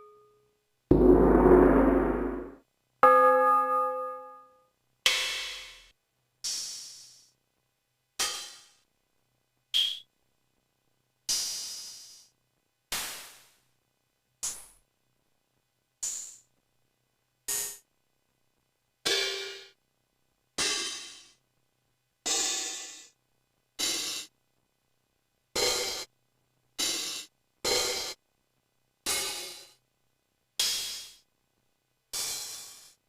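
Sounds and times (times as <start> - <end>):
drum machine cymbal hits: 0.9 - 2.6.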